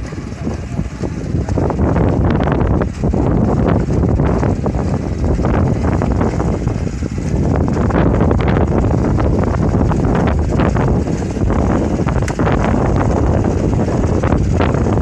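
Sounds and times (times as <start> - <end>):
small engine running: 0.0 - 15.0
wind buffeting microphone: 0.0 - 15.0.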